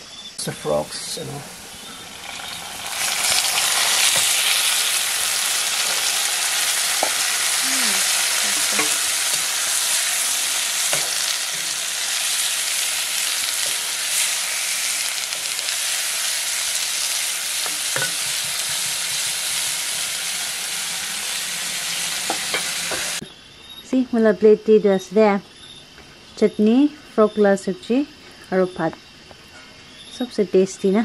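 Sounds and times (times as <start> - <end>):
food sizzling in hot oil: 0.4 - 23.2.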